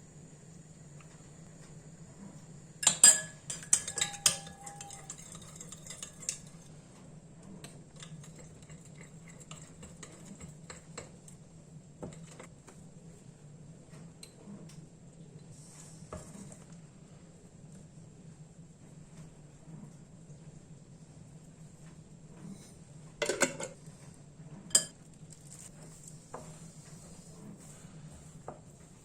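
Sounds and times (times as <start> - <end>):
dishes and utensils clinking: 2.8 - 6.7, 23.2 - 23.8, 24.7 - 25.7.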